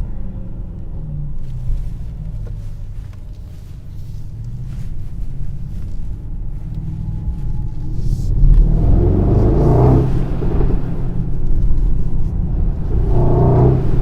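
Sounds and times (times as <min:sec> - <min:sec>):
car engine rumbling while driving: 0:00.0 - 0:14.0.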